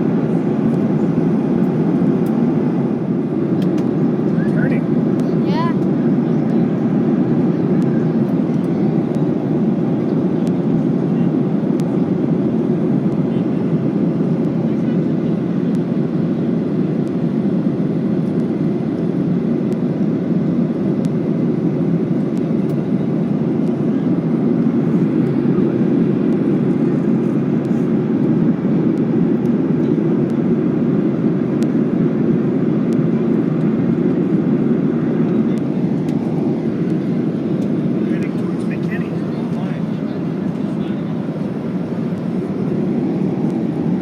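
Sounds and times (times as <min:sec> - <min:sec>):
airliner cabin engine noise: 0:00.0 - 0:44.0.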